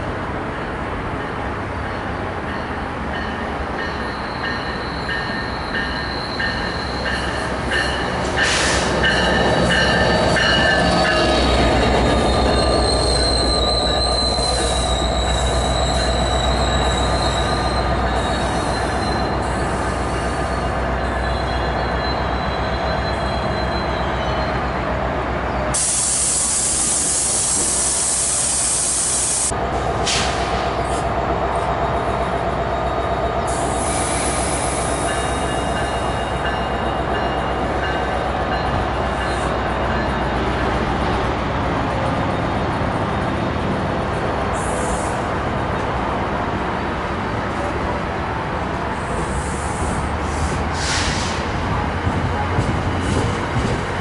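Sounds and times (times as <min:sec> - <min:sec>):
train cars rumbling: 0:00.0 - 0:54.0
high wheel squeal: 0:03.9 - 0:24.7
loud air hiss: 0:08.4 - 0:09.0, 0:25.8 - 0:30.6, 0:49.2 - 0:51.5.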